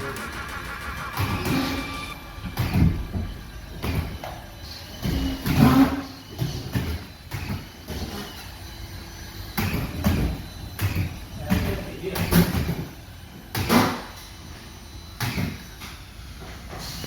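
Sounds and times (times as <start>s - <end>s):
indistinct voices: 0.0s - 2.2s.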